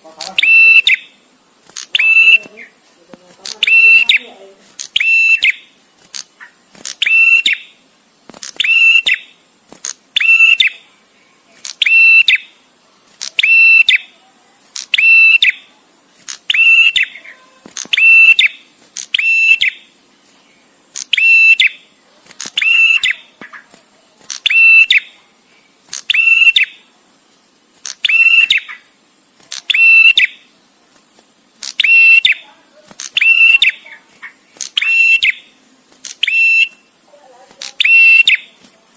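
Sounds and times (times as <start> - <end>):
bird chirping: 0.0 - 12.6, 13.2 - 26.9, 27.8 - 30.6, 31.6 - 38.6.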